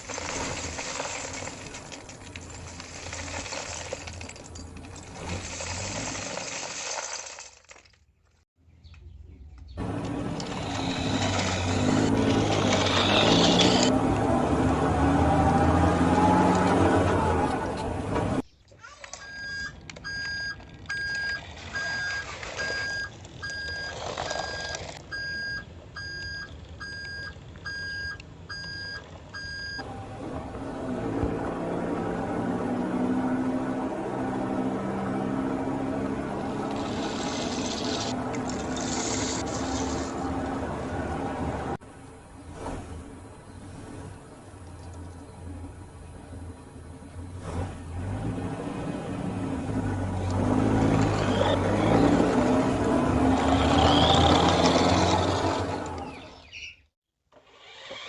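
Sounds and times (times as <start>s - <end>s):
metallic clinking and rattling: 0.0s - 8.1s
low vehicle rumble: 8.1s - 56.6s
vehicle reversing alarm beeping: 19.2s - 29.9s.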